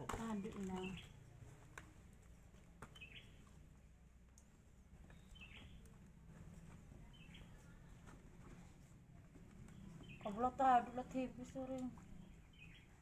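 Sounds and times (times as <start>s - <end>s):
faint bird chirp: 2.9s - 3.5s, 5.0s - 6.0s, 7.0s - 8.0s, 9.6s - 11.2s, 12.0s - 13.0s.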